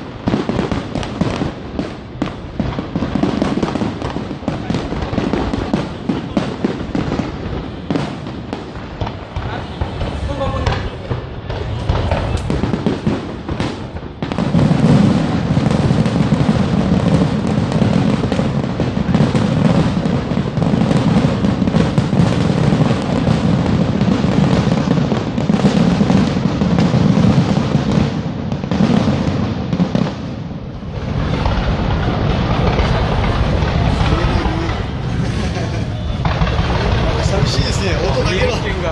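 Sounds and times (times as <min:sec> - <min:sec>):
fireworks bursts and booms: 0:00.0 - 0:38.9.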